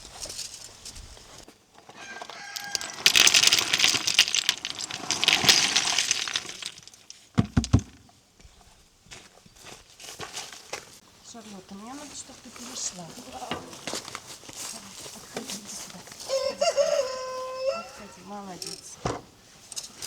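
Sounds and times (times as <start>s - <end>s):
chicken crowing harshly: 2.0s - 3.2s, 16.2s - 18.3s.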